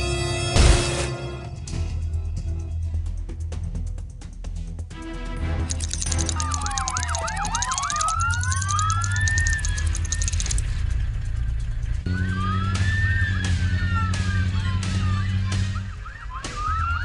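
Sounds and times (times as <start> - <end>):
police sirens wailing and yelping: 5.7 - 10.6, 12.2 - 17.0.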